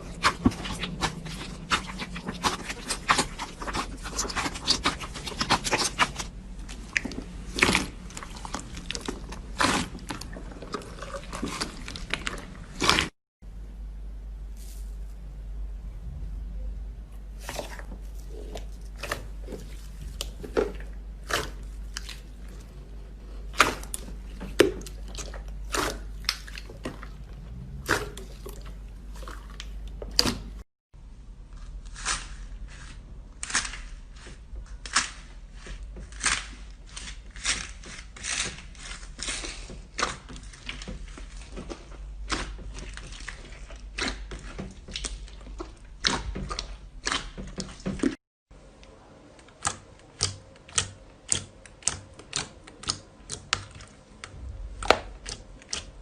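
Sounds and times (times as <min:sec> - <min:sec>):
low steady hum: 0:00.0 - 0:31.9, 0:39.2 - 0:56.0.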